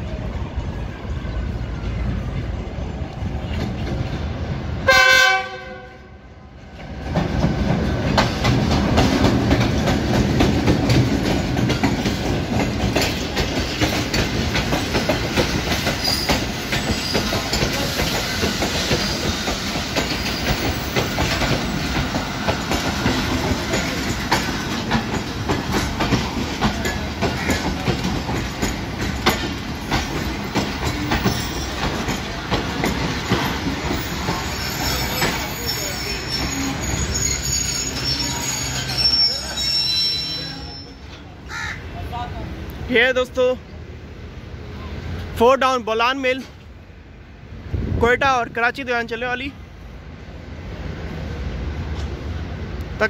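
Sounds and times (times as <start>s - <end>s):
train rolling on rails: 0.0s - 53.0s
train horn blast: 4.8s - 6.2s
wheels clicking over rail joints: 6.8s - 35.7s.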